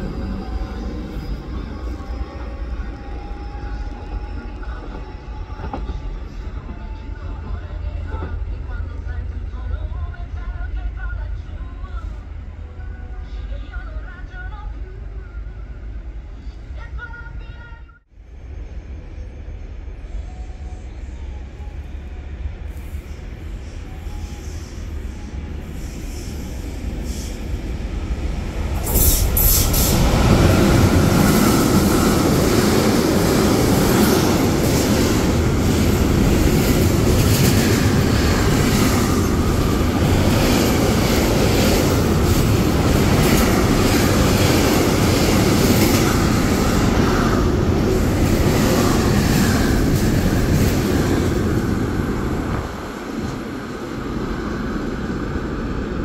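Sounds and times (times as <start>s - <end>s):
train wheels rushing on rails: 22.6s - 56.0s.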